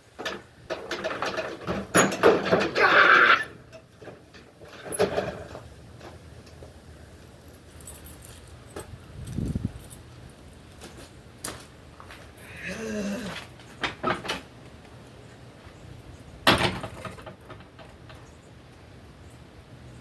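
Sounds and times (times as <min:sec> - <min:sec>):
keys jangling: 0:07.3 - 0:10.8, 0:12.1 - 0:13.3.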